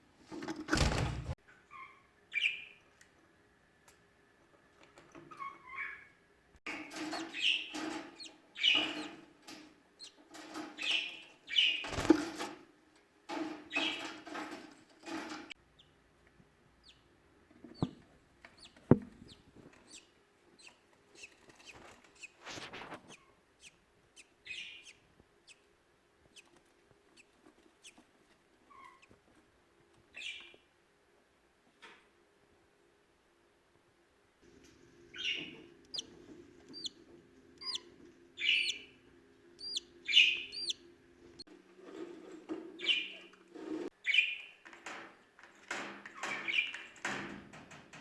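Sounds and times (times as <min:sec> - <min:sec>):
birds chattering calls: 0:06.7 - 0:12.1, 0:34.5 - 0:41.4.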